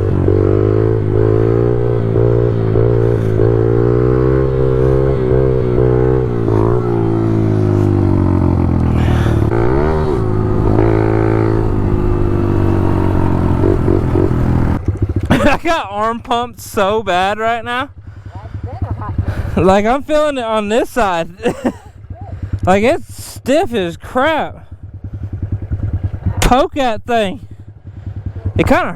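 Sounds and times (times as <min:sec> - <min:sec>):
small motorbike engine revving: 0:00.0 - 0:15.4.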